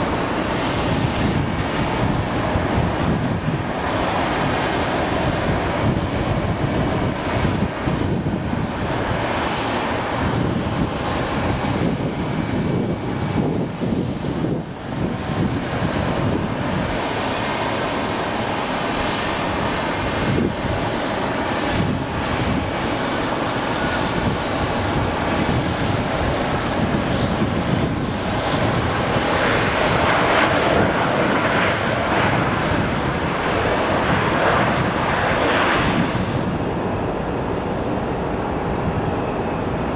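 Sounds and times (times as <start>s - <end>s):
jet engines roaring: 0.0s - 39.9s
faint high whine: 14.6s - 39.9s.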